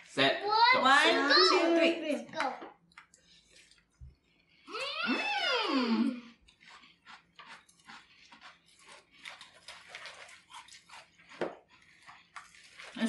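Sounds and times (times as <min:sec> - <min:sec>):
people chewing cereal: 0:02.8 - 0:13.0.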